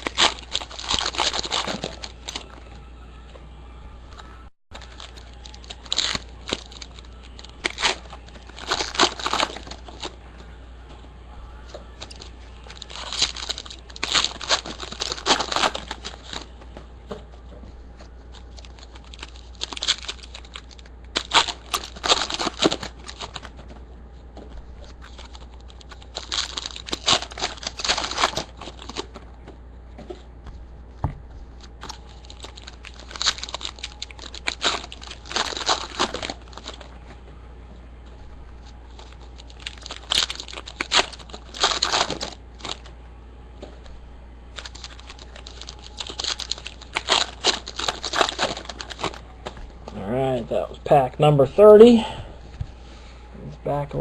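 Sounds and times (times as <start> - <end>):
foil wrappers tearing and crinkling: 0.0 - 2.5, 4.8 - 10.2, 11.9 - 16.6, 18.2 - 23.8, 24.8 - 29.2, 31.6 - 37.0, 38.6 - 42.9, 44.5 - 50.0
steady low hum: 0.0 - 54.0.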